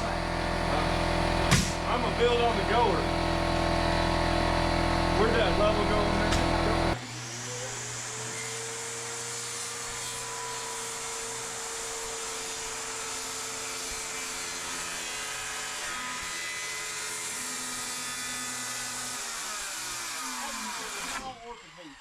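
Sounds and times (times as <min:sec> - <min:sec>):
power tool motor whining: 0:00.0 - 0:22.0.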